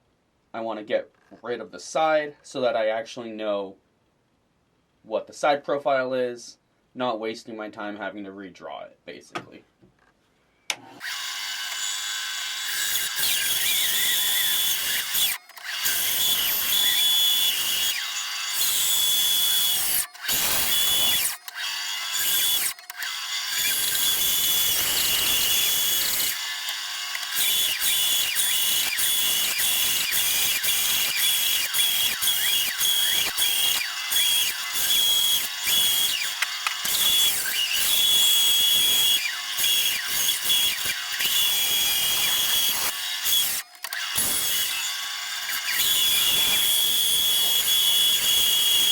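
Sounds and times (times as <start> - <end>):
bandsaw cutting wood: 10.8 - 48.9.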